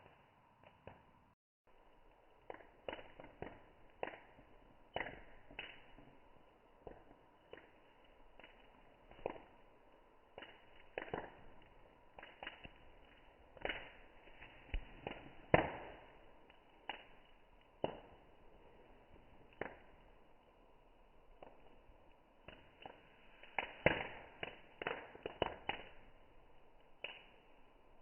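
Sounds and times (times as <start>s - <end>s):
campfire crackling and popping: 0.0s - 28.0s.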